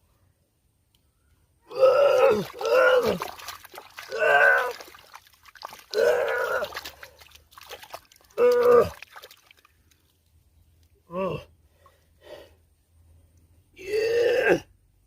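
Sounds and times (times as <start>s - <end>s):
water trickling and splashing: 1.9s - 10.5s.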